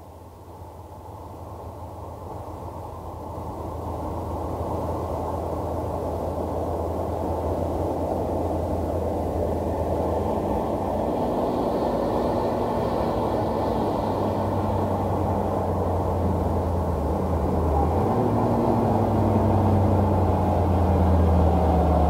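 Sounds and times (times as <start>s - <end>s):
car engine approaching: 0.0s - 22.0s
high engine whine: 0.0s - 22.0s.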